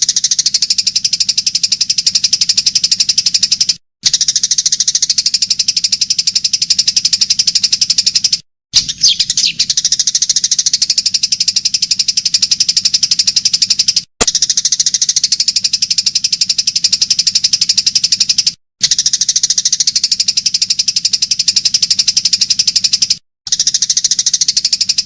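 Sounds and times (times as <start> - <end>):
high-pitched pulsing bird trill: 8.8 - 18.2, 18.8 - 25.0.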